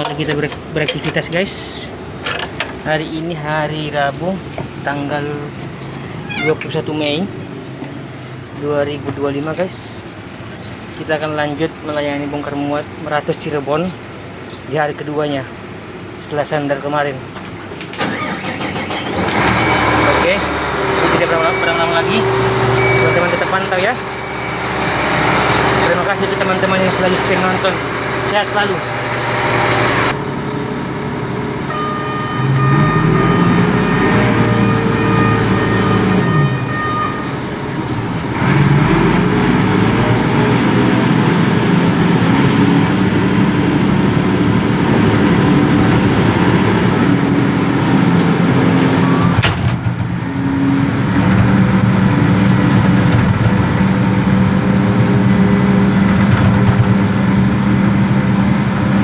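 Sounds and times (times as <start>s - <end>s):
diesel engine revving: 1.2s - 59.0s
high whine: 20.2s - 30.9s.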